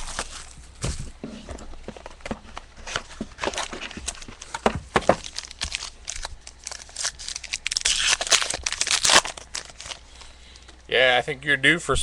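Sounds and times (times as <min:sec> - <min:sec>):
plastic wrapping tearing and crinkling: 0:00.0 - 0:00.7, 0:02.8 - 0:10.3.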